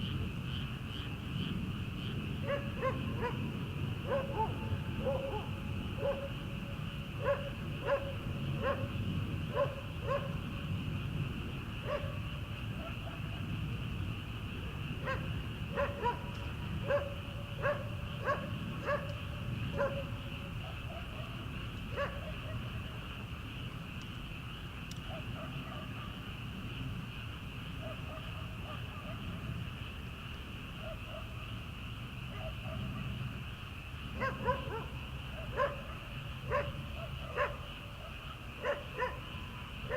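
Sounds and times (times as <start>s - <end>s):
frogs calling: 0.0s - 39.9s
distant dog barking: 2.4s - 6.5s, 7.2s - 10.5s, 11.8s - 13.6s, 14.6s - 22.9s, 25.0s - 26.2s, 27.8s - 29.6s, 30.8s - 31.4s, 32.3s - 33.2s, 34.1s - 39.9s.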